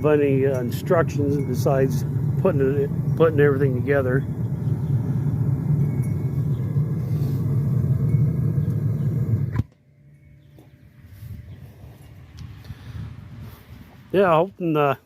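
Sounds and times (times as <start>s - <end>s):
gas burner roaring: 0.0s - 14.2s
burner shutoff click: 4.3s - 9.8s.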